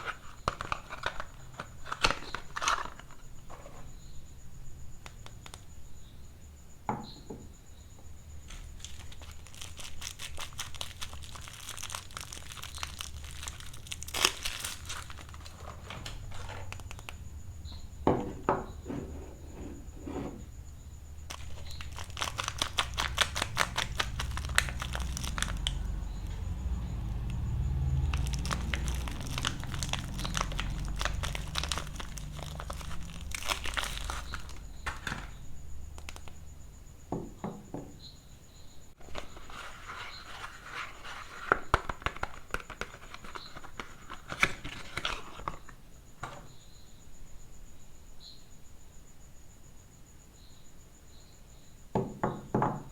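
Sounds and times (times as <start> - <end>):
wrappers crinkling and tearing: 0.0 - 3.2, 8.5 - 17.2, 21.3 - 26.3, 27.9 - 35.3, 39.0 - 45.6.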